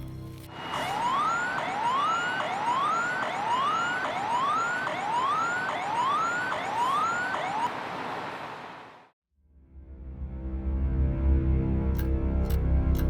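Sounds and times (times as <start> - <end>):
siren whooping: 0.5 - 7.8.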